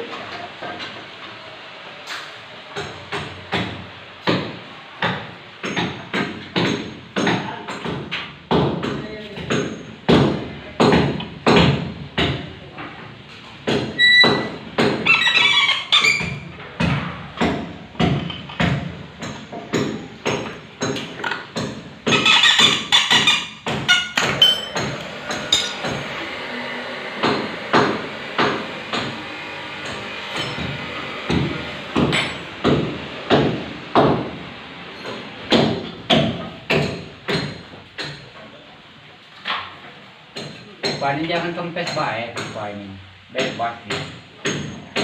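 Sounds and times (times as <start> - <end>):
high ringing: 23.9 - 24.8
hammer blows: 27.2 - 34.3.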